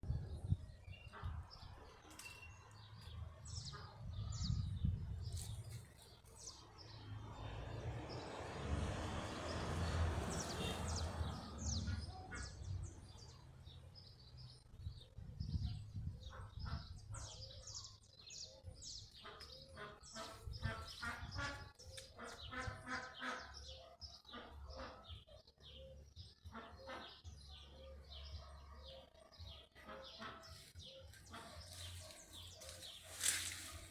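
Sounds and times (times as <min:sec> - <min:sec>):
small birds chirping: 0:09.8 - 0:33.9.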